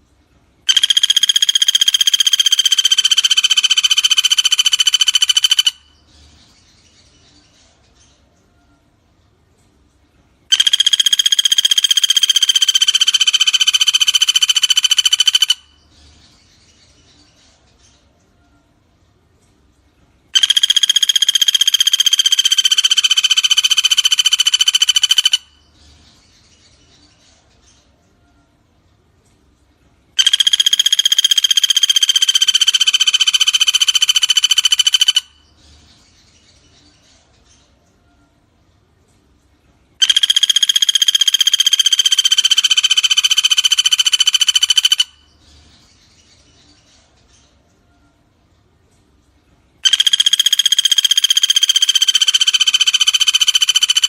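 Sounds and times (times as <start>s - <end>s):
faint chirps: 0.0s - 54.0s
woodpecker rattling trill: 0.7s - 6.0s, 10.5s - 15.8s, 20.3s - 25.7s, 30.2s - 35.5s, 40.0s - 45.4s, 49.8s - 54.0s.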